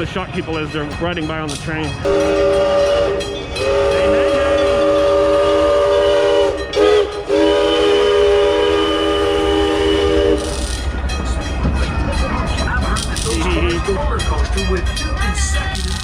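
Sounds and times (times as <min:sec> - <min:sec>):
steam locomotive chime whistle: 0:02.0 - 0:11.6.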